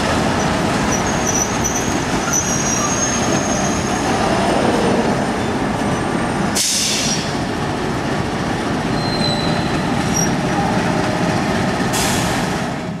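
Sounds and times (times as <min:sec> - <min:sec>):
train wheels rumbling on rail: 0:00.0 - 0:13.0
wheels squealing: 0:00.4 - 0:04.2, 0:08.9 - 0:10.8.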